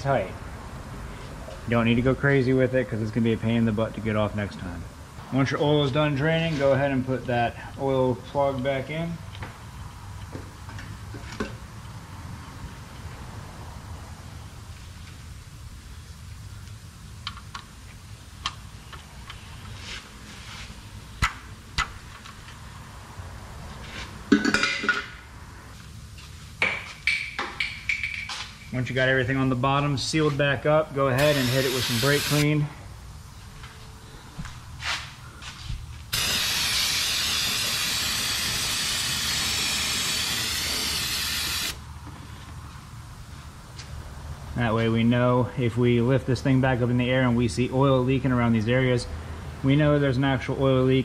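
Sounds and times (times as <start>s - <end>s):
steady low hum: 25.2s - 47.8s
aerosol spray hiss: 31.2s - 32.5s, 36.1s - 41.8s.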